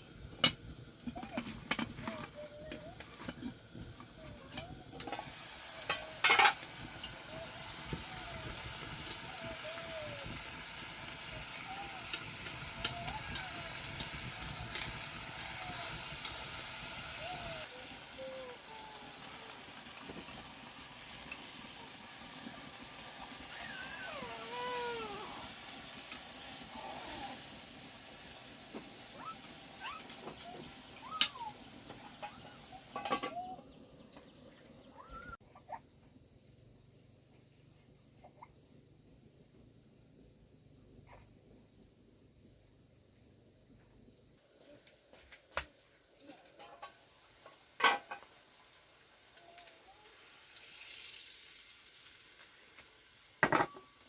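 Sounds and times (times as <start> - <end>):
food sizzling in pan: 0.0 - 35.4, 46.4 - 54.0.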